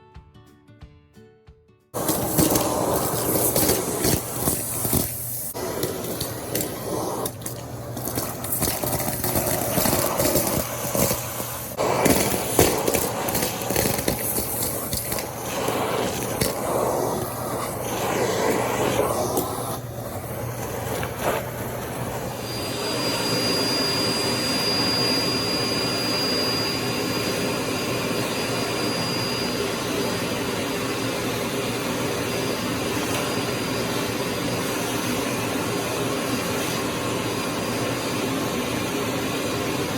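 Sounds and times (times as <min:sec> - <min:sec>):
vacuum cleaner running: 0:02.0 - 0:39.9
thin high whistle: 0:22.3 - 0:30.2.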